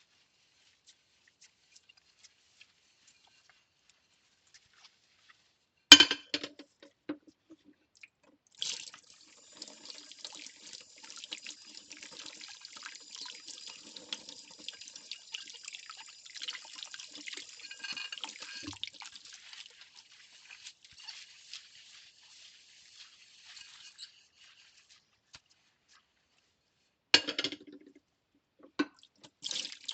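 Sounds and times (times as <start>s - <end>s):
plate clinking against sink: 5.9s - 6.5s, 27.2s - 27.6s
tap water running and splashing: 8.1s - 25.0s, 28.6s - 29.9s.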